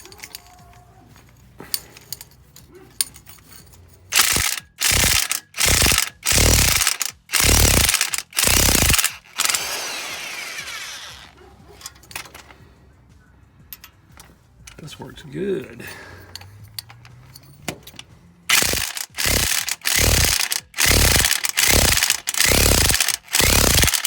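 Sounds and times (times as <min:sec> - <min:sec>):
impact wrench hammering: 0:04.1 - 0:11.3, 0:17.7 - 0:24.0.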